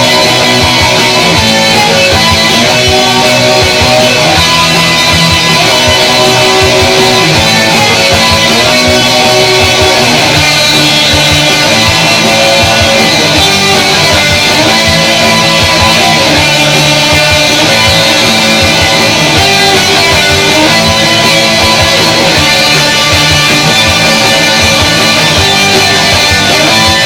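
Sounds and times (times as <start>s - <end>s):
electric guitars: 0.0s - 27.0s
regular drum beat: 0.0s - 27.0s
rock band playing: 0.0s - 27.0s.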